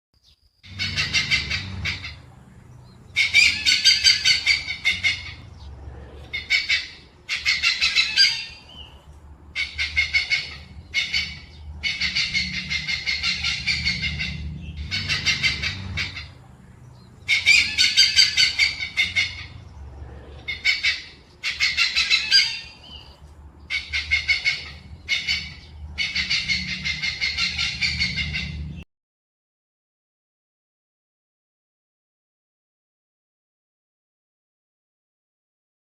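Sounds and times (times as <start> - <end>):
hornbill calling in pulsed notes: 0.7 - 19.7, 20.4 - 28.8.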